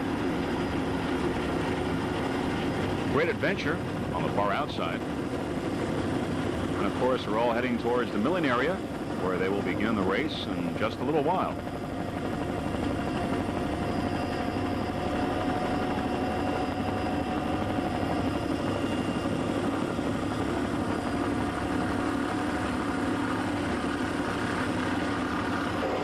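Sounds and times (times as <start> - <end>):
steady engine drone: 0.0 - 26.0.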